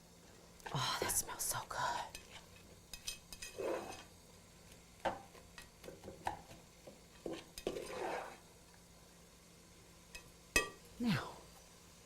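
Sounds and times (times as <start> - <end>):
spoon stirring vegetables in pot: 2.0 - 8.6.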